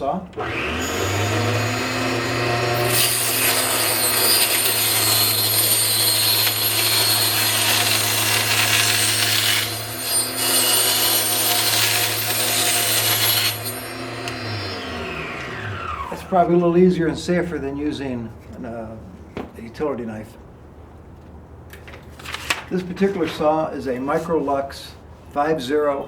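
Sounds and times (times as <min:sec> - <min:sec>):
table saw motor hum: 0:00.4 - 0:16.3
saw cutting wood veneer: 0:00.4 - 0:16.7.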